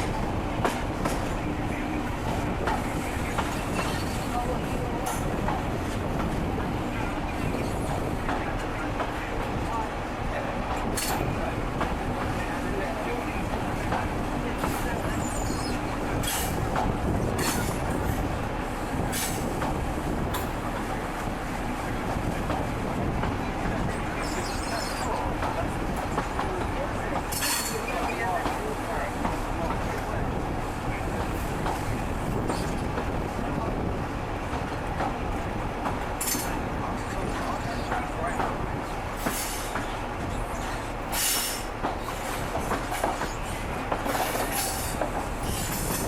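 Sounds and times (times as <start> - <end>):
train rumbling on rails: 0.0 - 46.0
wheels clicking over rail joints: 24.2 - 30.0, 39.2 - 46.0.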